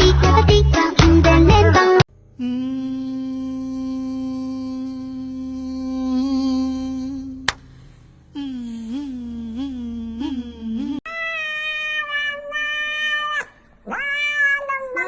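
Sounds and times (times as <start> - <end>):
steady humming tone: 1.3 - 11.0
cat meowing: 11.1 - 15.0.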